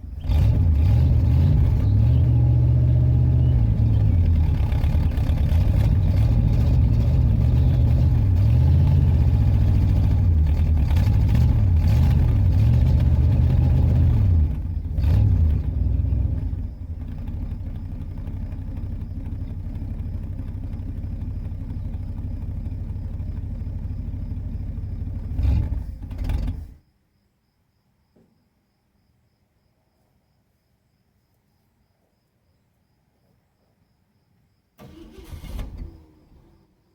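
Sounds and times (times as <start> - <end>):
car engine revving: 0.0 - 26.8, 34.8 - 36.6.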